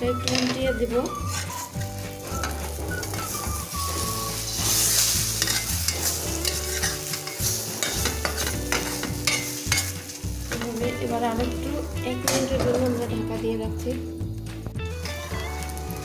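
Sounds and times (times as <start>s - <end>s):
spatula scraping pan: 0.2s - 10.8s
flatbread frying and sizzling: 1.0s - 13.6s, 14.2s - 16.0s.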